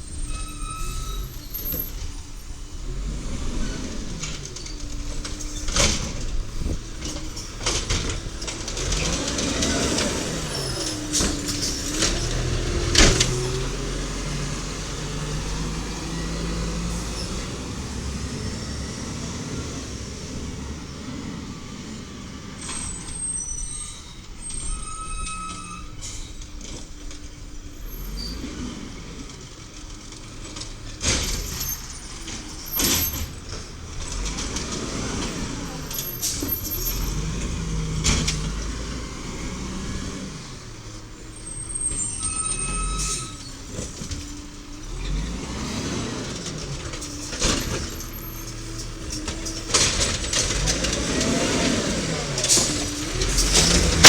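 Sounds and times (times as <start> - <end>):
garbage truck engine revving: 0.0 - 54.0.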